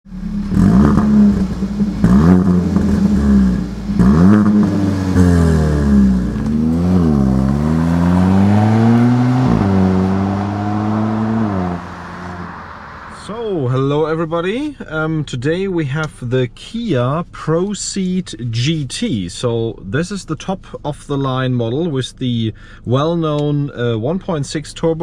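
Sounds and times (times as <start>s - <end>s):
car engine revving: 0.0s - 13.8s.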